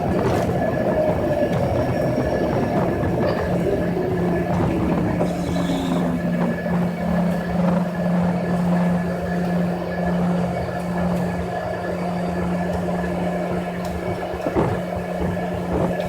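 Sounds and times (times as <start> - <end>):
whine falling in pitch: 0.0 - 9.0
jet engine hum: 0.0 - 16.0.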